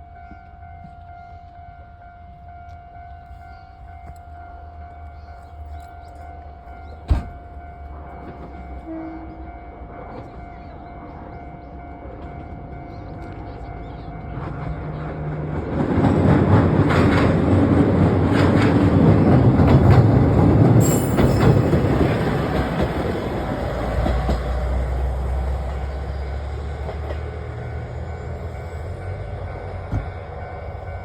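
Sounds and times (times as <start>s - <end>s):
train wheels clicking over rail joints: 12.2s - 31.0s.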